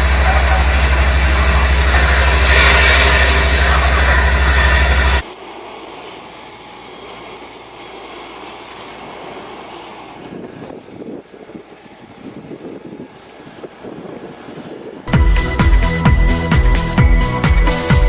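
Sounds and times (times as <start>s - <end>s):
machine running: 0.0s - 14.2s.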